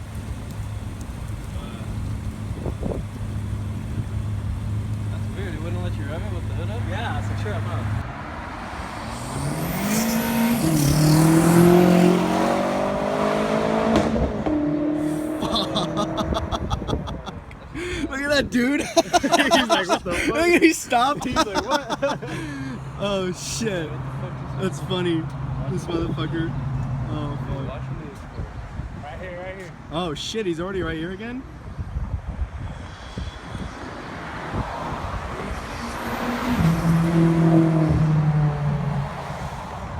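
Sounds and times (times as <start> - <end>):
exhaust crackling: 0.0 - 28.2
car engine accelerating: 0.4 - 16.8, 34.6 - 39.7.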